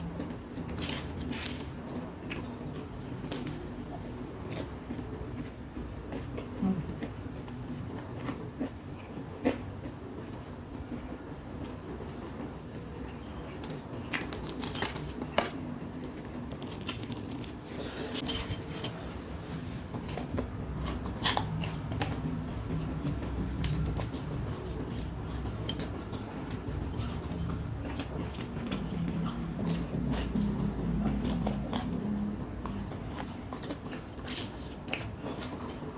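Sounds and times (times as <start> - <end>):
crunching fried snacks: 13.5 - 17.6.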